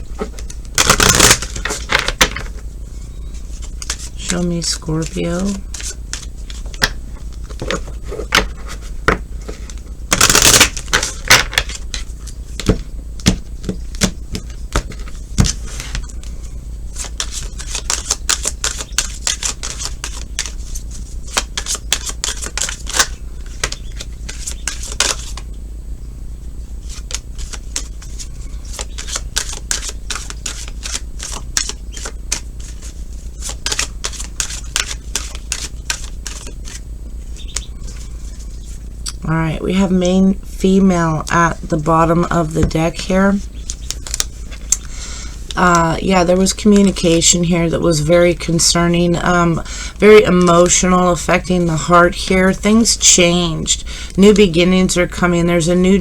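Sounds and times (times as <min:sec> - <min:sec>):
cards being shuffled: 0:00.1 - 0:02.6, 0:03.4 - 0:25.5, 0:26.8 - 0:38.8, 0:41.2 - 0:45.6.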